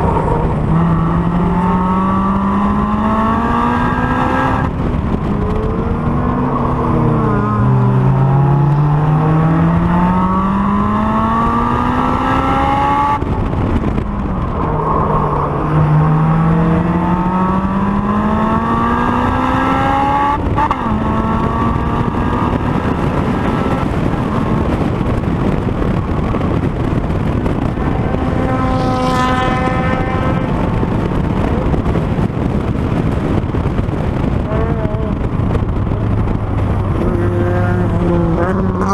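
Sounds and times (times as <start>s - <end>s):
car engine revving hard: 0.0s - 14.0s, 14.9s - 25.6s, 27.2s - 31.8s.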